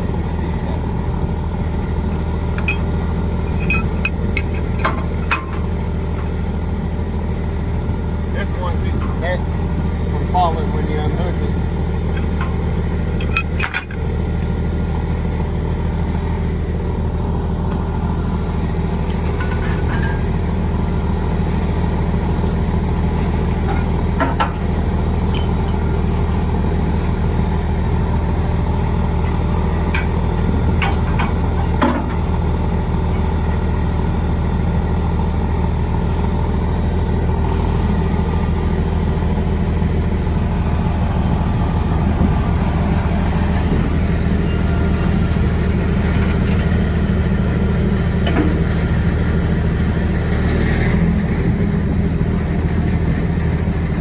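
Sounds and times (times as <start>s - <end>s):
diesel truck engine idling: 0.0s - 54.0s
metallic clinks: 25.2s - 26.0s.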